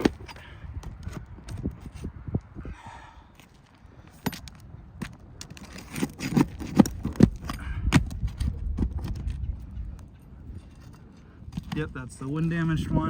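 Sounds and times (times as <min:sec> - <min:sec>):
hand tool knocking and scraping shingles: 0:00.0 - 0:02.0, 0:04.2 - 0:09.5.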